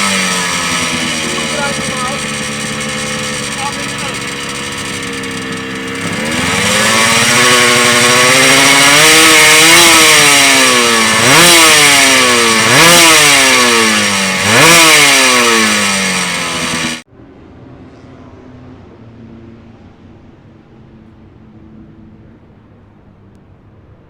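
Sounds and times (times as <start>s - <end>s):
motorcycle engine revving: 0.0s - 17.1s.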